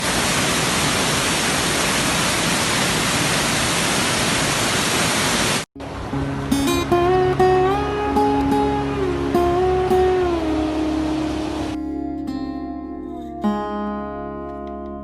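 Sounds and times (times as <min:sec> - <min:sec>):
waterfall rushing water: 0:00.0 - 0:11.8
soft music with low notes: 0:05.8 - 0:15.0.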